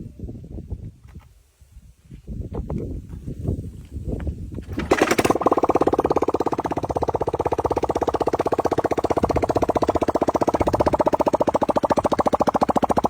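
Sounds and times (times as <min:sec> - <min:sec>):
small engine pulsing: 0:04.6 - 0:13.0.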